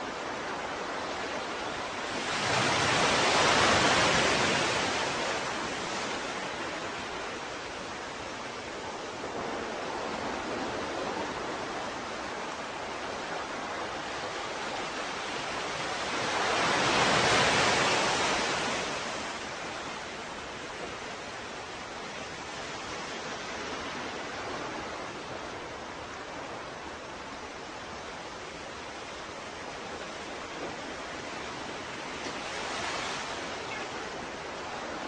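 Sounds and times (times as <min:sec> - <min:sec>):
ocean waves washing on shore: 0:00.0 - 0:35.0.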